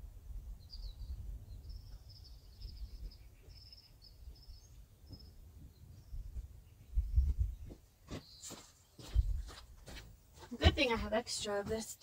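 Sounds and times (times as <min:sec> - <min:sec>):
small bird chirping: 0:00.5 - 0:09.5.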